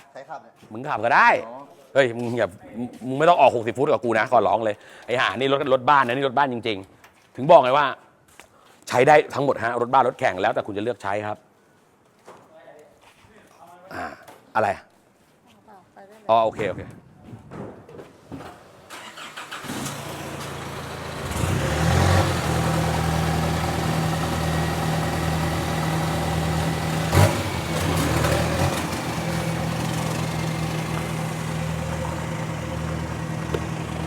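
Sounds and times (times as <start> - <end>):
car engine starting and idling: 18.8 - 34.0.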